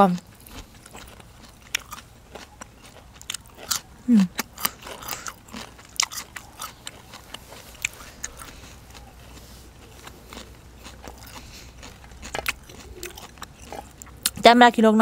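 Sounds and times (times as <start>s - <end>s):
close chewing with crisp crunches: 0.0s - 14.5s
wet mouth clicks: 9.9s - 14.4s.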